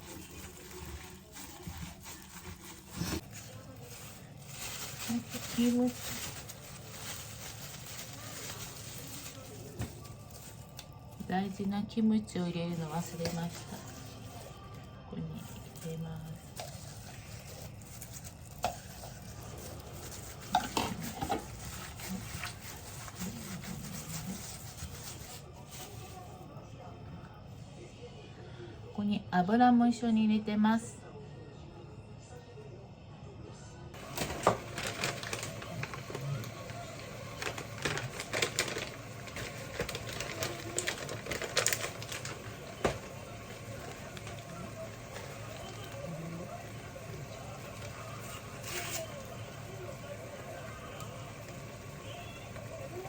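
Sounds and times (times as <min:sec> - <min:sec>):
utensil stirring food in pot: 0:15.5 - 0:25.9, 0:34.0 - 0:53.0.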